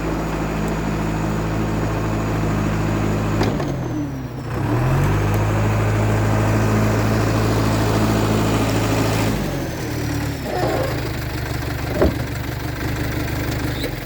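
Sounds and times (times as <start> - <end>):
bulldozer diesel engine running: 0.0 - 14.0.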